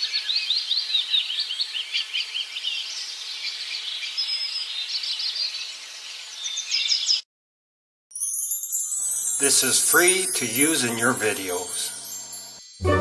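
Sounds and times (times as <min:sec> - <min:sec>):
small birds chirping: 0:00.0 - 0:07.2
steady hiss: 0:08.8 - 0:12.6.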